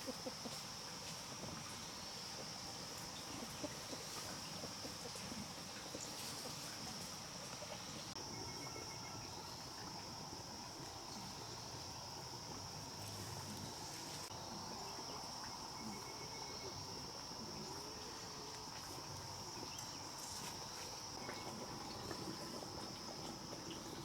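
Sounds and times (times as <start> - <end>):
faint ticks and rustles: 0.0 - 8.2, 17.1 - 24.0
high-pitched insect chorus: 0.0 - 24.0.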